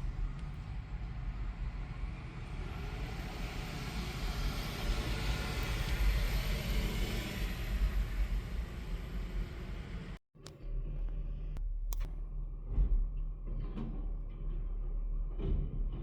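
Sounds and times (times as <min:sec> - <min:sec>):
garbage truck engine rumbling: 0:00.0 - 0:16.0
hiss: 0:02.1 - 0:10.2.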